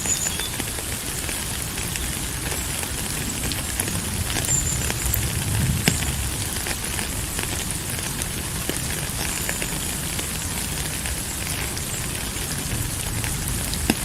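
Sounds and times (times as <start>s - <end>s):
steady rain: 0.0s - 14.0s
low rumble: 3.0s - 8.7s.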